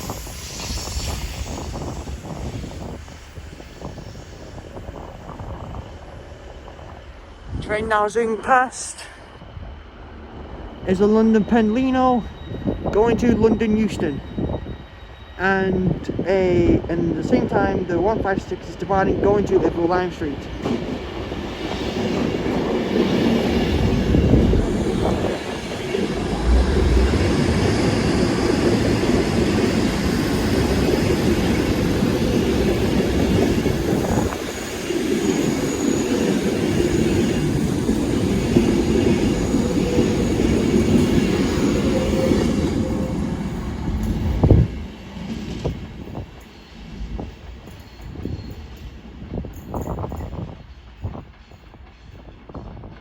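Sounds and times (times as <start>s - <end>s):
electric train passing at speed: 0.0s - 53.0s
diesel train pulling away: 20.6s - 49.2s.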